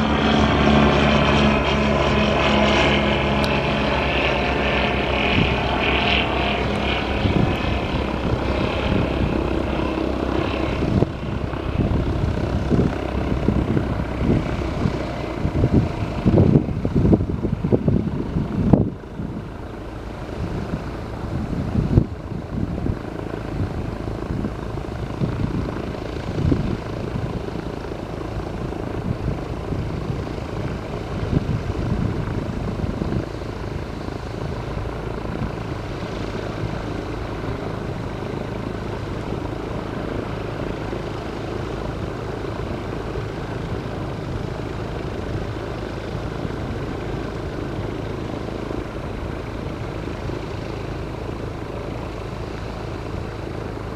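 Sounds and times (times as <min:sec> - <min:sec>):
light airplane engine droning: 0:00.0 - 0:53.9
wind on microphone: 0:00.0 - 0:53.9.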